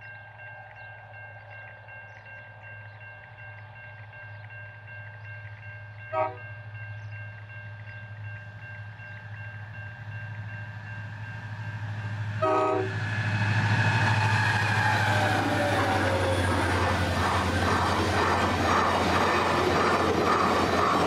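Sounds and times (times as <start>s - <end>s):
level crossing warning bell: 0.0s - 12.6s
train engines and wheels: 0.0s - 21.0s
locomotive horn blast: 6.1s - 6.5s, 12.4s - 13.3s.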